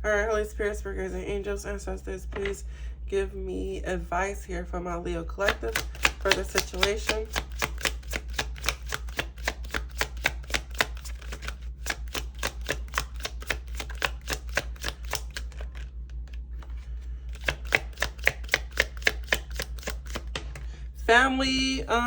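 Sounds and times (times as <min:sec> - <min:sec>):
steady low hum: 0:00.0 - 0:22.0
cards being shuffled by hand: 0:05.4 - 0:20.7.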